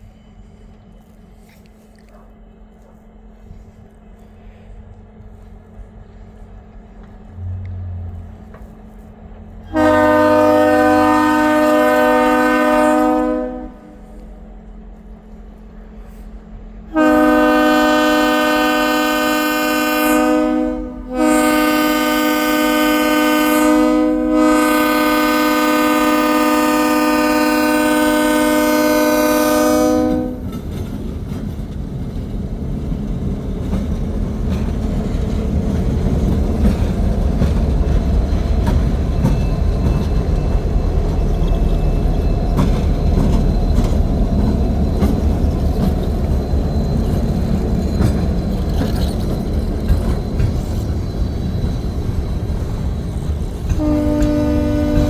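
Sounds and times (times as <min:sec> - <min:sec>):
locomotive engine rumble: 0:00.0 - 0:55.0
locomotive air horn blasts: 0:09.7 - 0:14.1, 0:16.9 - 0:30.5, 0:53.7 - 0:55.0
train wheels clattering: 0:26.6 - 0:55.0.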